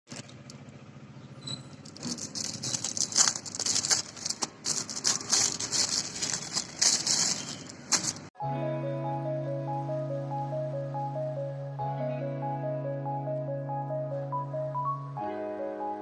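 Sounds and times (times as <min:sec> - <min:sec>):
small clicks and rattles: 0:01.6 - 0:08.3
plastic packaging crinkling: 0:01.8 - 0:08.3.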